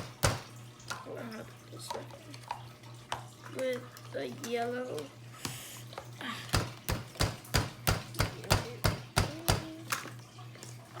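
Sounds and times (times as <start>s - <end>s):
tool knocking on a tabletop: 0.0s - 0.5s, 6.6s - 9.7s.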